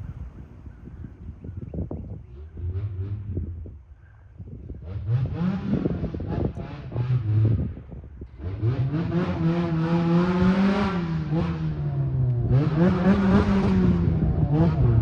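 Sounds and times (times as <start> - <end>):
race car engine revving: 4.8 - 15.0.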